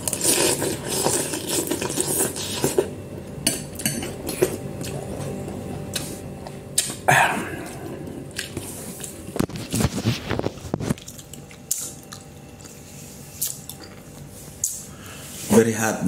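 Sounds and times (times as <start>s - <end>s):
man chewing with wet lip smacks: 3.8s - 14.8s.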